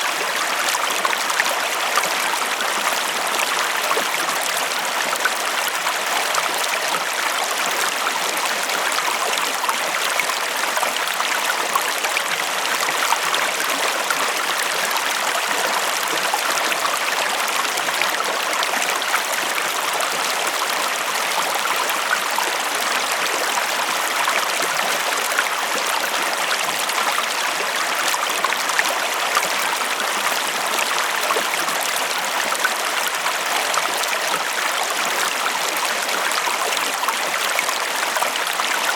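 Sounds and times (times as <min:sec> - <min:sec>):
river flowing over stones: 0:00.0 - 0:38.9.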